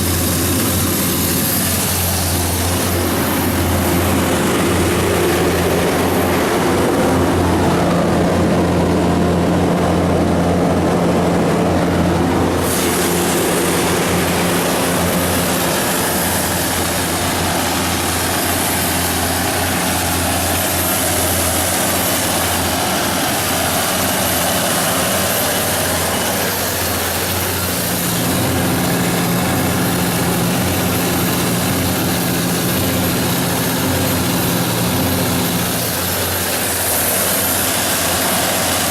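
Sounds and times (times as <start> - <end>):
diesel generator humming: 0.0 - 38.9
fan and air hiss: 0.0 - 38.9.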